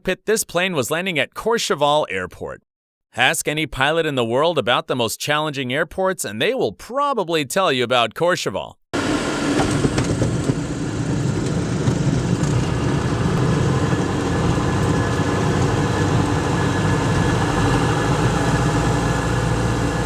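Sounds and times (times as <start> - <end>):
aircraft engine drone: 9.0 - 20.0.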